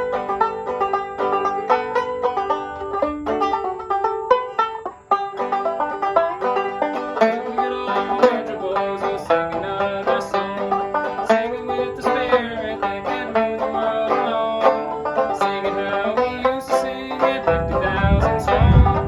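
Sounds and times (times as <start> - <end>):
banjo playing a quick tune: 0.0 - 19.0.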